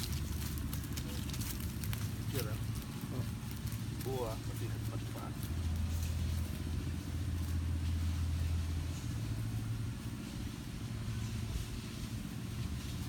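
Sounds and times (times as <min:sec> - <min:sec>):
low rumble with hum: 0:00.0 - 0:13.0.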